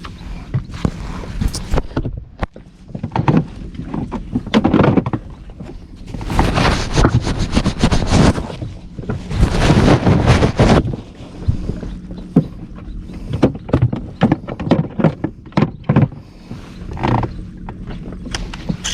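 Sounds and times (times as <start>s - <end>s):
wind gusting on microphone: 0.5s - 2.8s, 5.4s - 12.3s
knocks and rustles: 0.5s - 11.8s.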